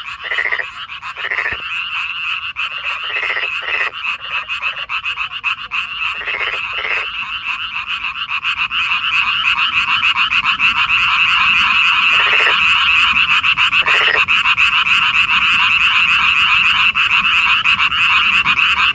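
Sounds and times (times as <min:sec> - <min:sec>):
frog chorus trilling: 0:00.0 - 0:18.9
low frog croaks: 0:00.0 - 0:18.9.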